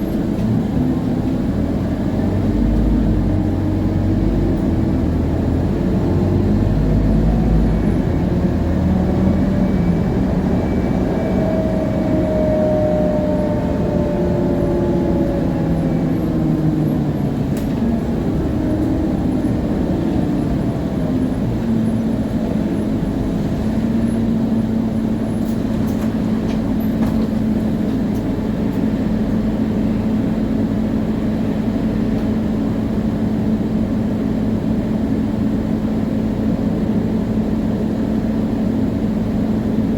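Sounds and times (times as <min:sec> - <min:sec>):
bus diesel engine running: 0:00.0 - 0:39.9
rear axle gear whine: 0:02.0 - 0:29.0.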